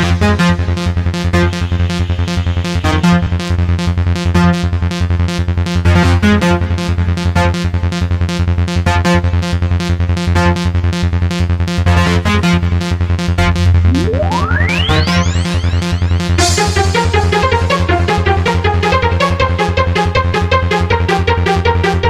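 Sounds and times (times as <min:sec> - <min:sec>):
fast electronic dance music: 0:00.0 - 0:06.0, 0:12.6 - 0:22.0
rising synth sweep: 0:13.6 - 0:18.4.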